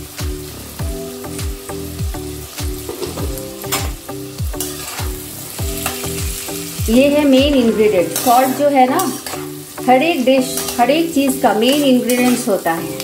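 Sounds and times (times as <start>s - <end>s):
background music with a beat: 0.0s - 7.9s
food sizzling in a pan: 0.0s - 13.0s
metal spatula scraping a pan: 4.6s - 13.0s.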